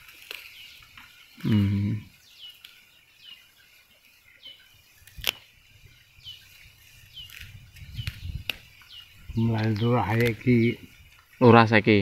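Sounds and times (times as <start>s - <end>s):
small bird chirping: 0.0s - 12.0s
man humming: 1.4s - 2.1s.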